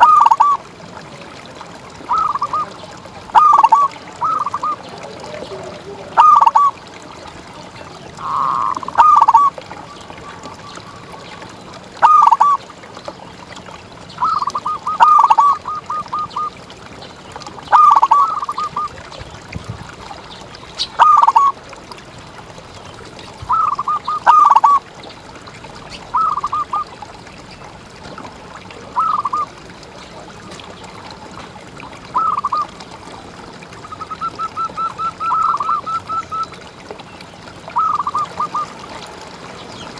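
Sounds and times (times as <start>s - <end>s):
dove cooing: 0.0s - 0.6s, 2.1s - 6.8s, 8.2s - 9.6s, 12.0s - 12.6s, 14.2s - 16.5s, 17.7s - 18.9s, 21.0s - 21.5s, 23.4s - 24.8s, 26.1s - 26.9s, 29.0s - 29.5s, 32.2s - 32.7s, 33.8s - 36.5s, 37.8s - 38.7s.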